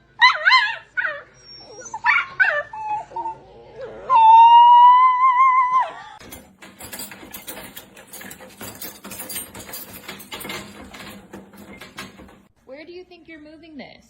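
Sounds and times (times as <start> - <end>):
scratching tapping and rustling: 6.2 - 12.5.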